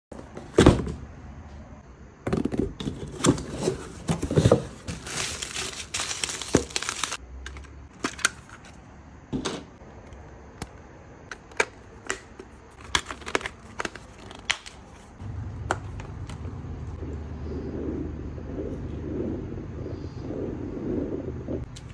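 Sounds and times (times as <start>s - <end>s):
low steady hum: 0.2s - 21.9s
crinkling and rustling handling: 2.4s - 8.9s, 11.3s - 17.0s.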